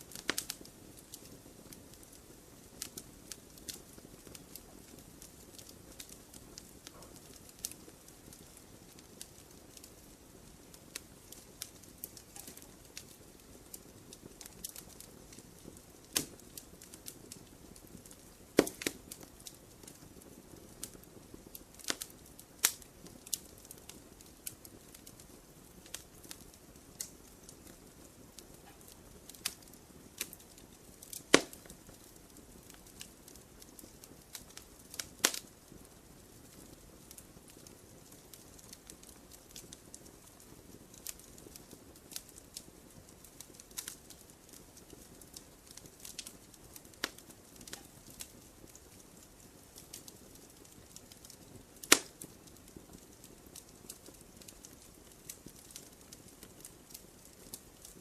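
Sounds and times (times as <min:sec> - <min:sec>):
fire hissing: 0:00.0 - 0:40.0, 0:49.4 - 0:52.4
wood crackling: 0:00.0 - 0:58.0
loud wood pops: 0:18.6 - 0:19.0, 0:31.3 - 0:31.7, 0:51.8 - 0:52.1.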